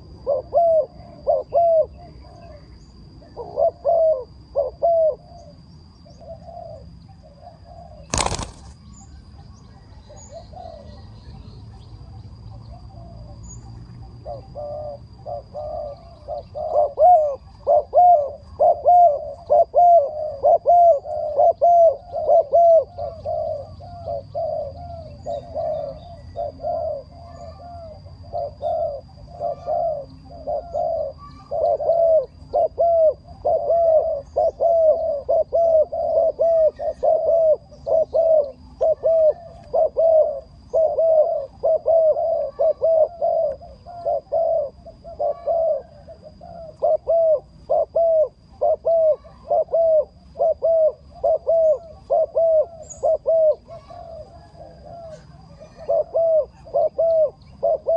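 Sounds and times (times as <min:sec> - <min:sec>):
birds calling: 0:00.0 - 0:57.9.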